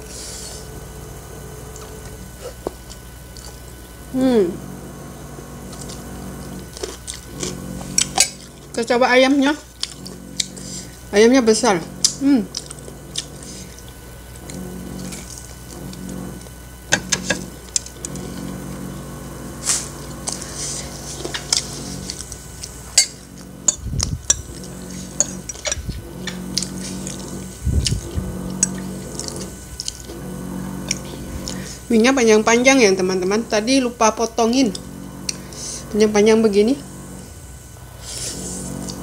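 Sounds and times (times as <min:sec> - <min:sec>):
crunchy chewing: 0:05.2 - 0:08.8, 0:09.7 - 0:11.1, 0:11.9 - 0:31.9
dull low thumps: 0:23.4 - 0:26.6.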